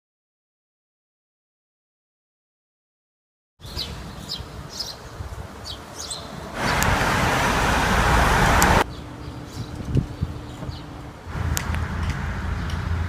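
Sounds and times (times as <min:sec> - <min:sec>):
small birds chirping: 0:03.6 - 0:07.2, 0:08.7 - 0:11.2
passing traffic rush: 0:03.6 - 0:13.0
wind rumbling on microphone: 0:03.6 - 0:13.0.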